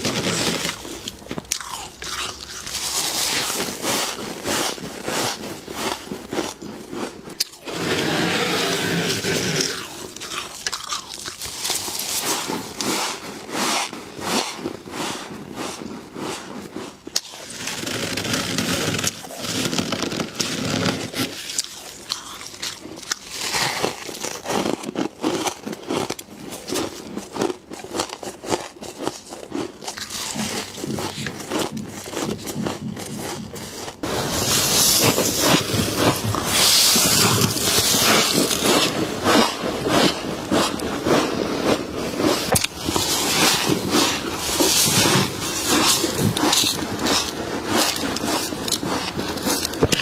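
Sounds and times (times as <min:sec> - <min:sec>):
frost being bitten and chewed: 0:00.0 - 0:07.7, 0:09.3 - 0:14.5, 0:15.7 - 0:18.3, 0:20.0 - 0:50.0
harsh hissing crunching: 0:33.6 - 0:49.8.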